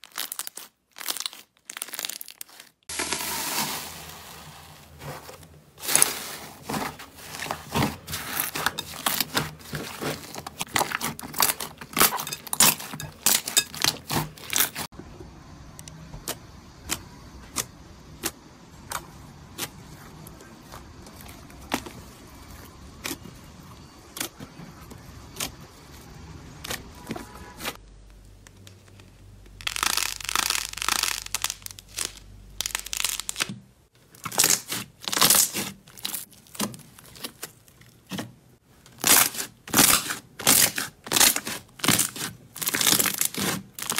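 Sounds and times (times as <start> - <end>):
slime crackling and popping: 0.0 - 3.7, 28.3 - 33.6, 34.2 - 38.2, 38.9 - 43.9.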